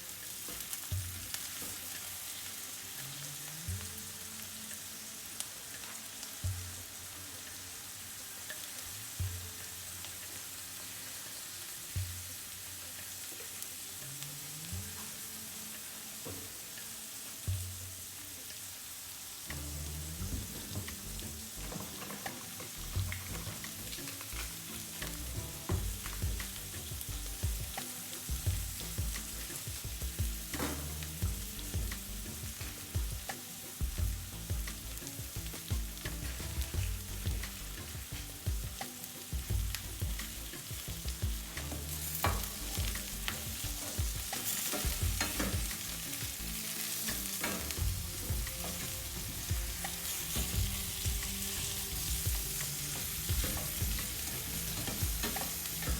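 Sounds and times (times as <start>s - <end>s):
food sizzling in a hot pan: 0.0s - 55.9s
utensil scraping a pan: 19.5s - 55.9s.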